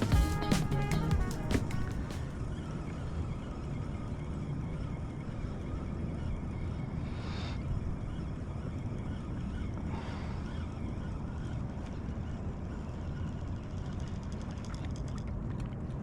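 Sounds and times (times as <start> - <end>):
fast faint ticks: 8.1 - 16.0.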